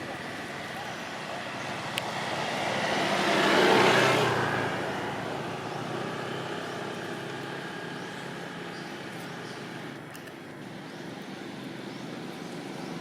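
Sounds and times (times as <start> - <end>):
vehicle passing by: 0.0 - 10.0.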